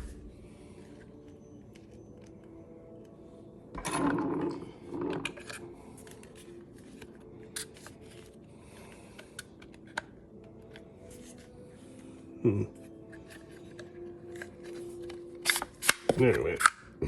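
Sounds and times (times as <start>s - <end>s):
clicks and scraping of parts: 3.8s - 8.2s.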